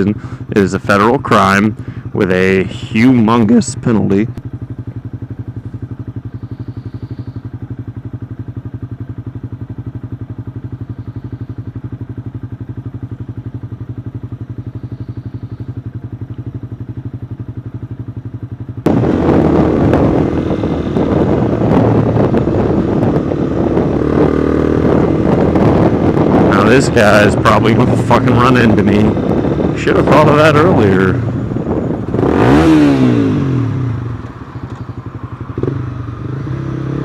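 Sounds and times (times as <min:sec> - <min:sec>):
motorcycle engine: 0:00.0 - 0:37.0
wind rushing over microphone: 0:18.8 - 0:37.0.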